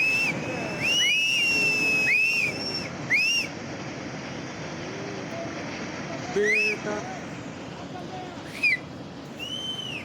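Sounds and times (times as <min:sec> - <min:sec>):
people whistling shrilly: 0:00.0 - 0:03.5, 0:06.4 - 0:06.8, 0:08.5 - 0:08.8, 0:09.4 - 0:10.0.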